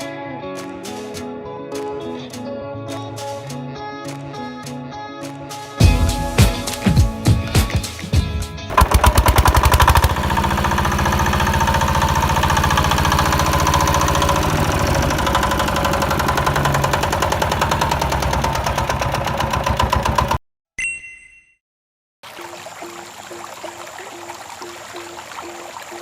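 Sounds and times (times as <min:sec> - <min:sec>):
small motor rattling and buzzing: 0:08.7 - 0:20.3.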